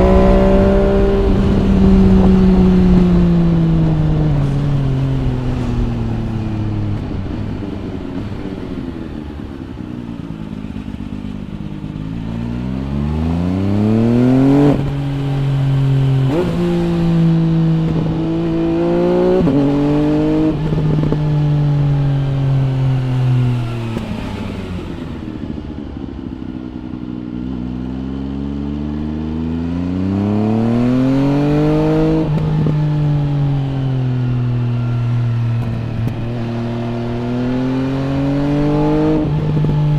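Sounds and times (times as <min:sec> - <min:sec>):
motorcycle engine revving and upshifting: 0:00.0 - 0:39.9.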